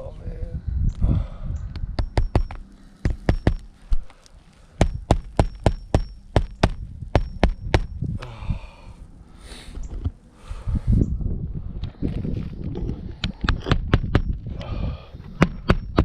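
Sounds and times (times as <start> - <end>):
hammer striking roofing nails: 2.0 - 3.7, 4.8 - 7.9, 13.6 - 14.4, 15.3 - 16.0.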